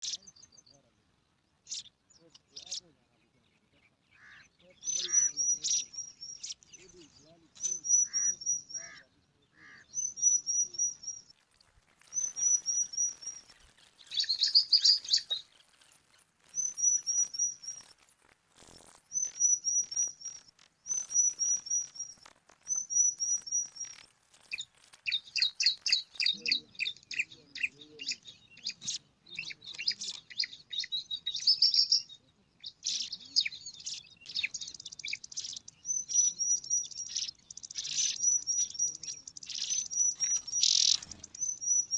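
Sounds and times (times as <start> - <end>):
birds giving high thin chirps: 0.0 - 41.9.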